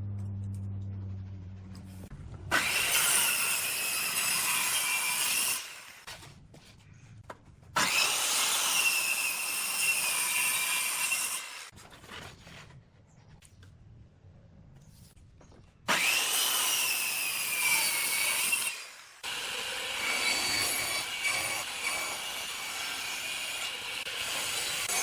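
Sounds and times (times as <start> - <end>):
power tool cutting wood: 2.5 - 6.1, 7.8 - 11.7, 15.9 - 25.0.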